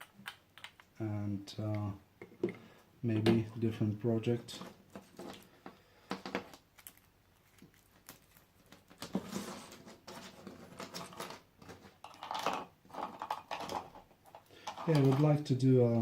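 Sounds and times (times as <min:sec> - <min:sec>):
small hard objects clicking on bench: 0:00.0 - 0:00.9.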